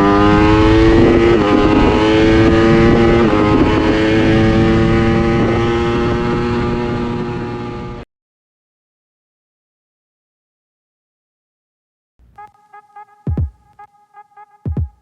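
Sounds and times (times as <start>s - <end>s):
motorcycle engine accelerating hard: 0.0s - 8.0s.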